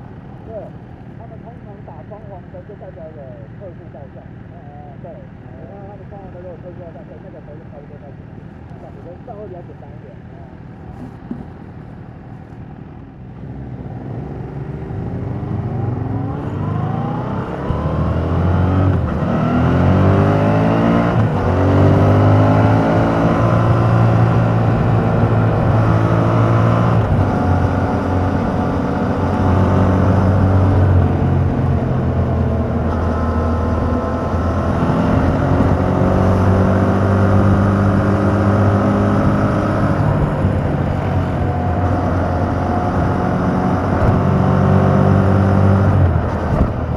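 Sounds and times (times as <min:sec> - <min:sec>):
motorcycle engine accelerating: 0:10.8 - 0:46.9.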